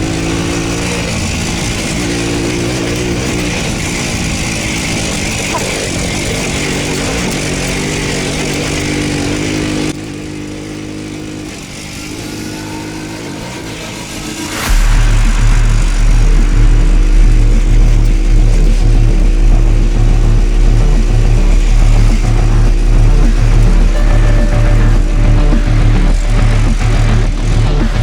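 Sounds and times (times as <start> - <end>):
two-stroke motorcycle engine: 0.0 - 28.0
wind noise: 13.4 - 28.0.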